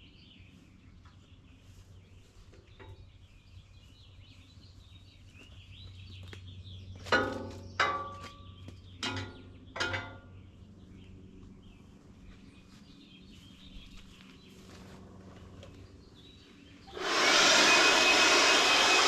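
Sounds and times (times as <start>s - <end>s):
small birds chirping: 0.0s - 17.0s
short loud pitched calls: 16.9s - 19.0s.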